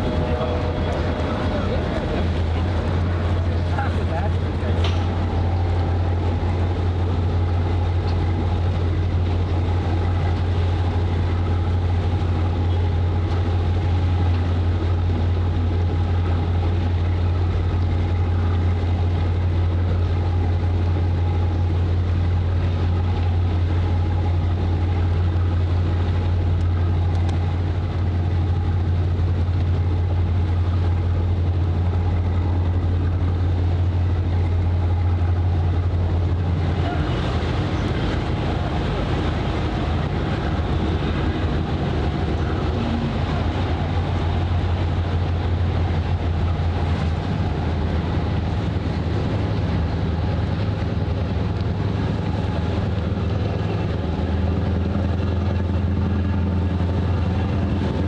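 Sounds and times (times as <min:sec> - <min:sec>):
boat engine droning: 0:00.0 - 0:58.0.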